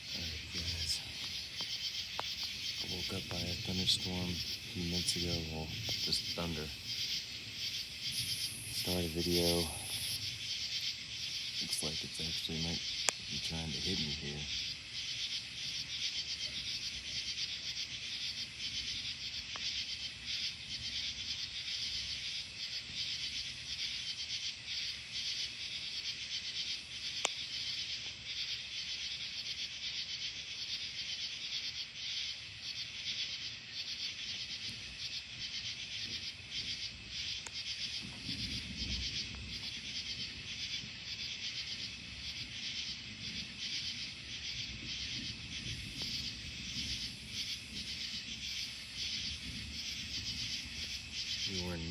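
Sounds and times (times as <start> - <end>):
distant thunder rumbling: 0.0 - 10.7, 36.0 - 51.9
crickets chirping: 0.0 - 51.9.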